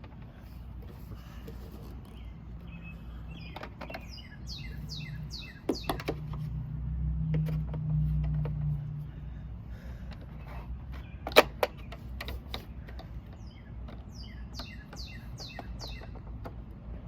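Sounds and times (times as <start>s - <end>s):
small bird chirping: 1.9s - 6.5s, 10.9s - 16.5s
toys clicking and knocking: 3.5s - 4.2s, 5.6s - 6.5s, 7.2s - 8.8s, 10.1s - 17.0s.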